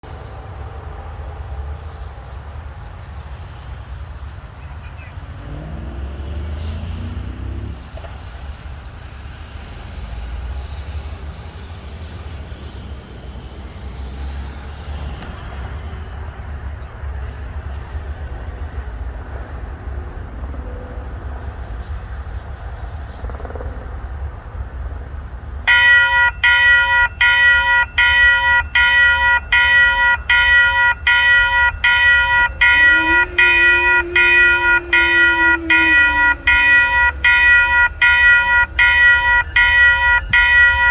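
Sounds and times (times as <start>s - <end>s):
freight train rumbling: 0.0s - 40.9s
railroad crossing bell ringing: 25.7s - 40.9s.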